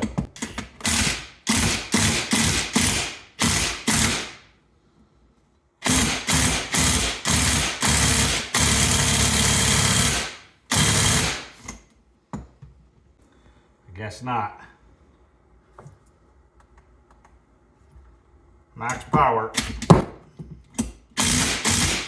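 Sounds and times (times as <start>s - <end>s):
impact wrench hammering: 0.0s - 4.4s, 5.8s - 11.6s, 19.6s - 20.2s, 21.2s - 22.0s.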